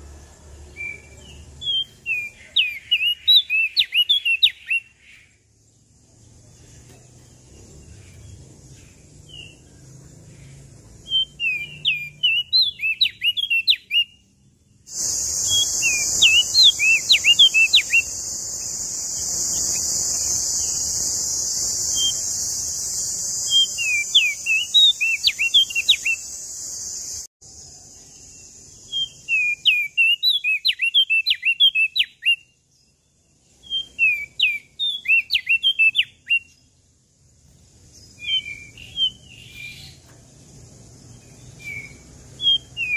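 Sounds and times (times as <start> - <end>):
bird singing high chirps: 0.0 - 36.8, 37.9 - 40.1, 41.0 - 42.9
loud steady high hiss: 14.9 - 29.4.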